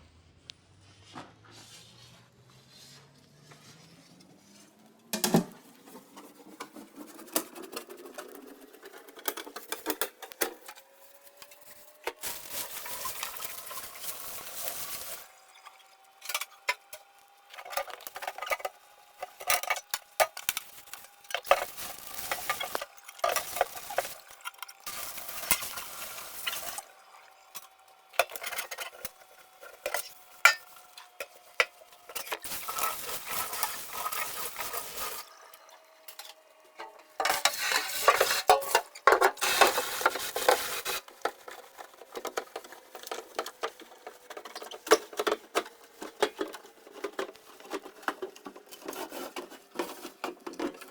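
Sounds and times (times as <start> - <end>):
dishes clinking and knocking: 5.2 - 5.6.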